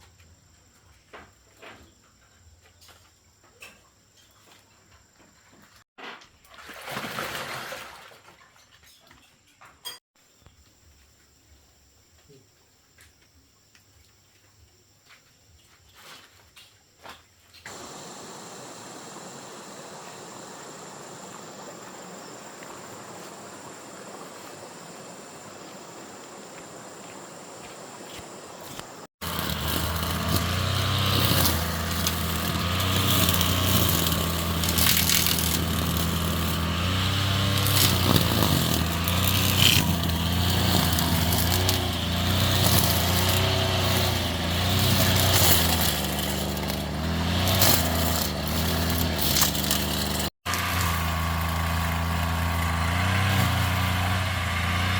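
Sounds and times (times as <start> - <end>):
small engine running: 17.7 - 26.1, 28.1 - 54.9.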